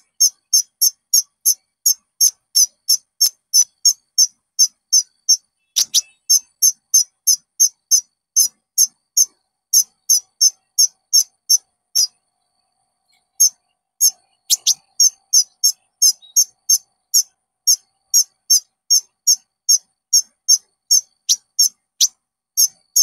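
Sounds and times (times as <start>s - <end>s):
bird high-pitched notes: 4.6s - 12.2s, 13.1s - 23.0s.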